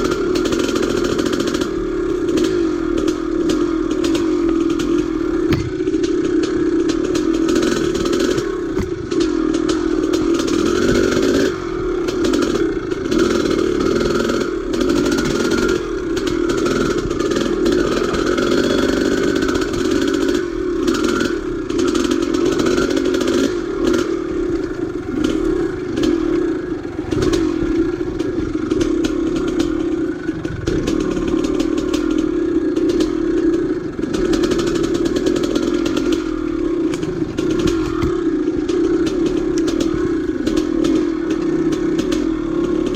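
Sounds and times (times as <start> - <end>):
dirt bike engine running: 0.0 - 42.9
knocks and rattles: 3.9 - 11.5.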